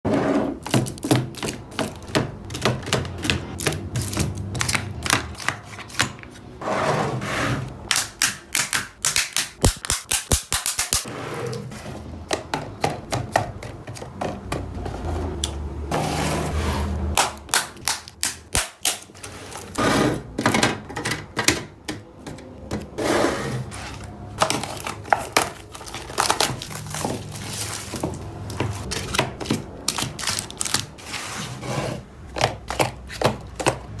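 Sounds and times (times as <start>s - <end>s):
containers clicking and knocking: 12.2s - 15.6s, 24.4s - 30.9s.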